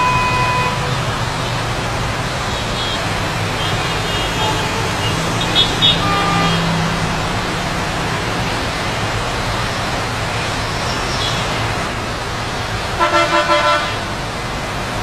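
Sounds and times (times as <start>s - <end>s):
short pitched tone: 0.0s - 0.8s
rain hissing: 0.0s - 15.0s.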